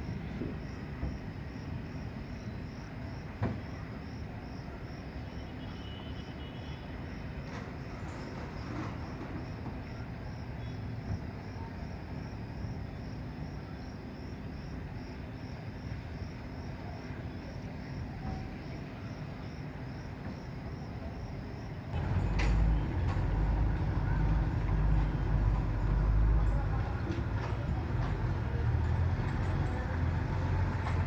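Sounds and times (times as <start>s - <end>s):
insect chirping: 0.0s - 7.4s, 8.2s - 22.0s
low machinery rumble: 21.9s - 31.0s
loud low machine drone: 22.0s - 26.9s.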